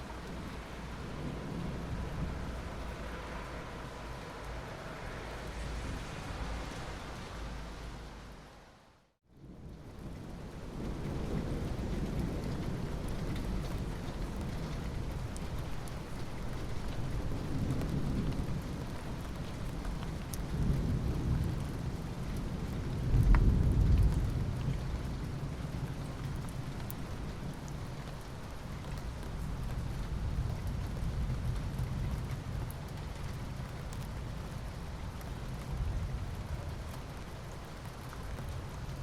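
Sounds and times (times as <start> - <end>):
low thunder rumbling: 0.0 - 4.5, 16.6 - 27.6
steady rain: 0.0 - 39.0.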